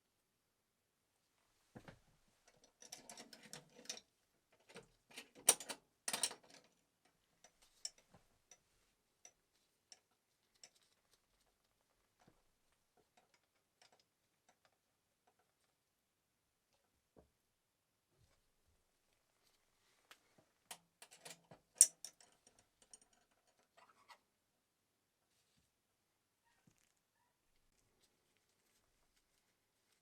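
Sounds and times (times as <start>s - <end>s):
small parts clicking and clattering: 2.5s - 8.6s, 20.7s - 24.2s.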